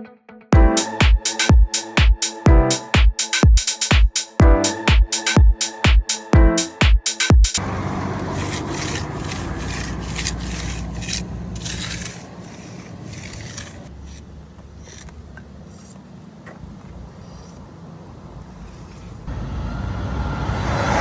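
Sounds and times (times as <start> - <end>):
low engine rumble: 7.6 - 13.0
hand tool scraping concrete: 8.2 - 16.1, 18.5 - 19.3.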